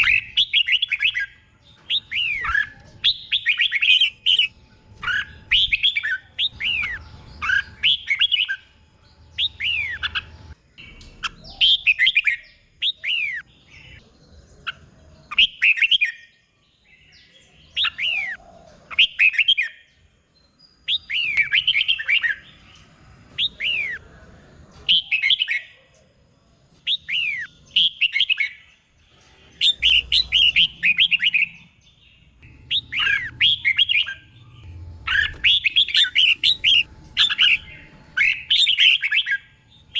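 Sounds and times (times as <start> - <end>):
bird singing whistled phrases: 0.0 - 8.7, 29.5 - 31.7, 35.1 - 39.9.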